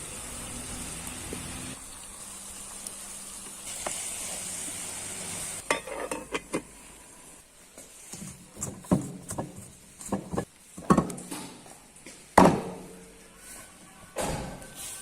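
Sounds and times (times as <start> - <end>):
food sizzling in a pan: 0.0 - 8.1.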